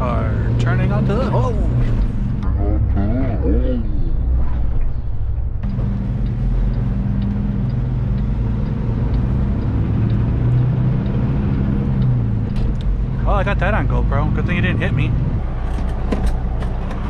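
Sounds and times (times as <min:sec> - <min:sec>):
turn signal clicking: 0:05.6 - 0:13.2
truck diesel engine running: 0:05.6 - 0:17.0.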